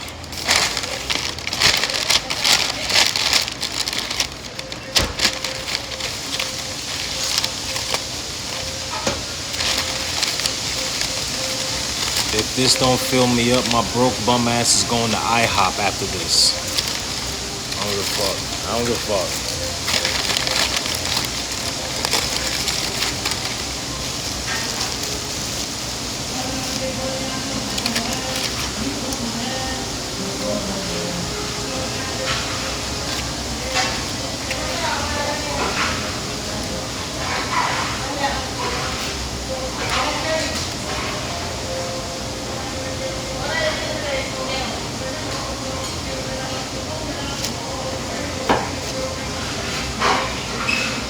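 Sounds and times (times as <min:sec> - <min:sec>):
chewing crunchy food: 0:16.0 - 0:29.2.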